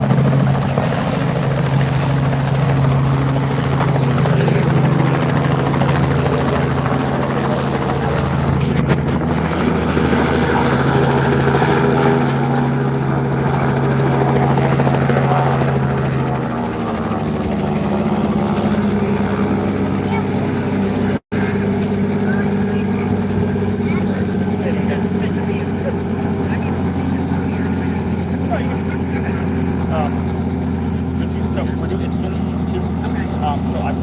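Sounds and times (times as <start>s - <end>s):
helicopter running: 0.0s - 34.0s.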